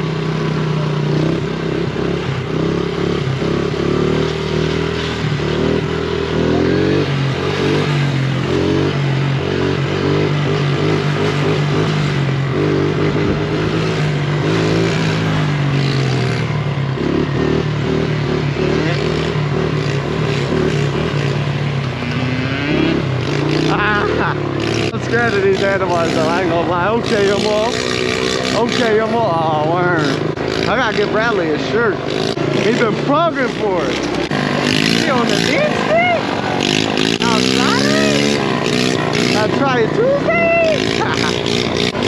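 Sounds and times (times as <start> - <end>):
small motorcycle engine running: 0.0 - 42.0.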